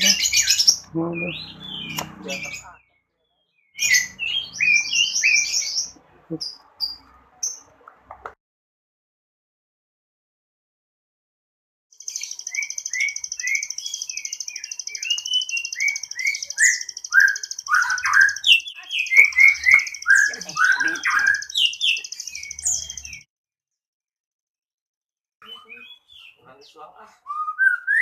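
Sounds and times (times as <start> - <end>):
songbird singing: 0.0 - 8.2, 12.0 - 23.3, 25.4 - 28.0.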